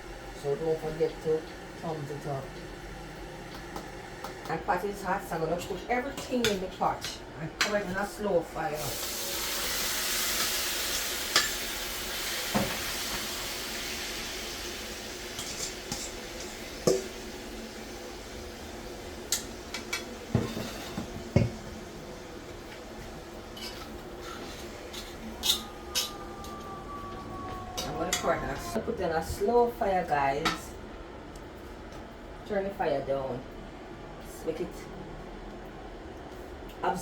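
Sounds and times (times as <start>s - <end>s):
chicken sizzling in a pot: 8.7s - 26.2s
spoon and pot lid clanking: 23.6s - 26.6s.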